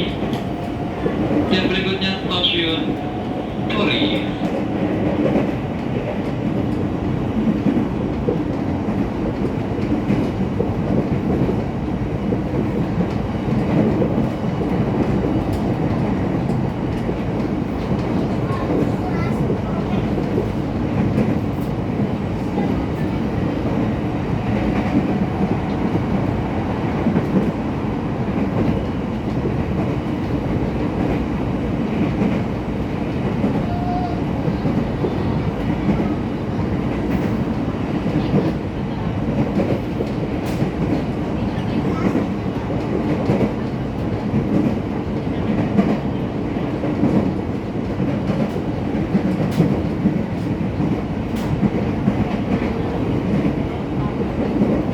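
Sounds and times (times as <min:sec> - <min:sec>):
train car running noise: 0:00.0 - 0:54.9.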